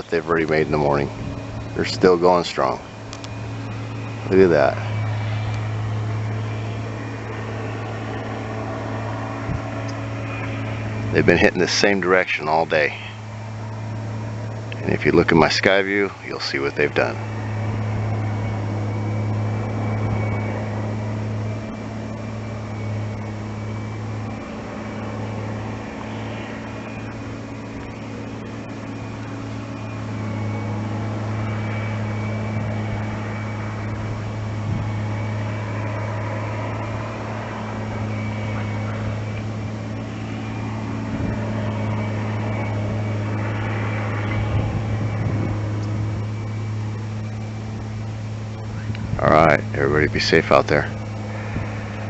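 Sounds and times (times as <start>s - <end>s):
faint high whine: 0.0s - 52.0s
low motor hum: 0.0s - 52.0s.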